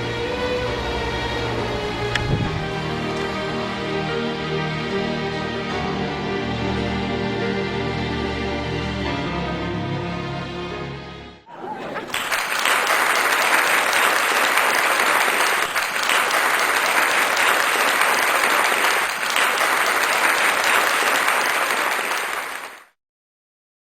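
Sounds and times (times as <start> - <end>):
audience applause: 11.5 - 23.0.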